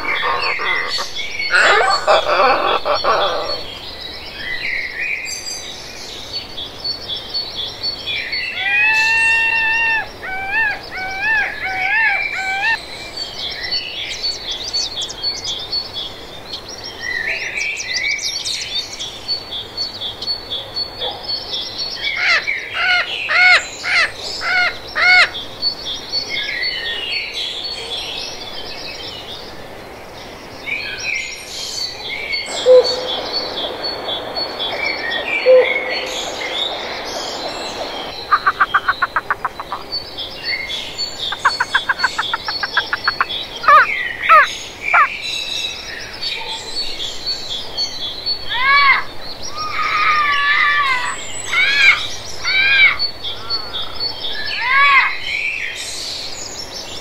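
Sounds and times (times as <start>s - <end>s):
loud rising bird calls: 0.0s - 3.8s, 8.5s - 12.8s, 32.4s - 40.0s, 41.3s - 45.2s
high-pitched bird chirping: 38.2s - 39.9s, 41.3s - 45.1s.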